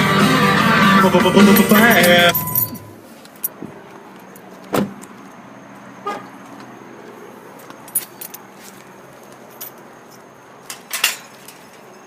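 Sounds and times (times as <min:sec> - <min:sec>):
light metallic jingles: 0:01.5 - 0:03.6, 0:07.6 - 0:12.0.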